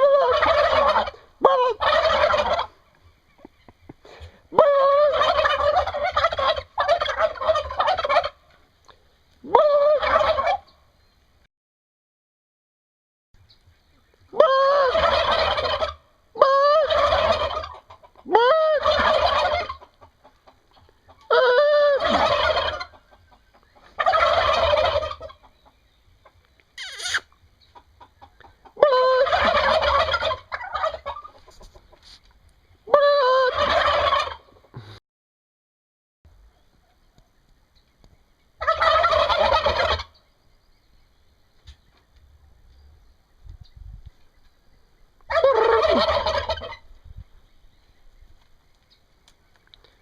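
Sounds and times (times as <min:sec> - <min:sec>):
turkeys gobbling: 0:00.0 - 0:10.9, 0:13.8 - 0:34.8, 0:38.0 - 0:40.3, 0:45.1 - 0:47.2.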